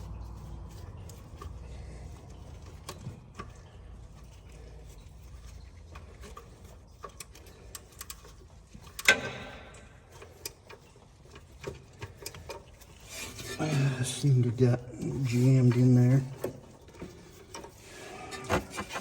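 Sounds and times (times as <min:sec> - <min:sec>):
hand tools clicking and tapping: 0:00.0 - 0:13.5.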